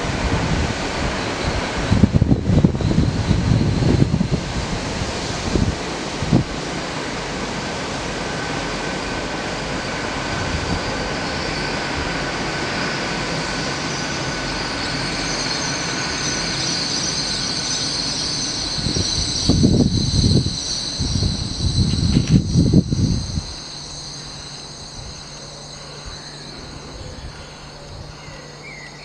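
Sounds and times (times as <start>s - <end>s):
wind on microphone: 0.0s - 15.2s, 18.6s - 23.6s
train wheel and rail noise: 0.0s - 29.0s
high ringing tones: 7.8s - 29.0s.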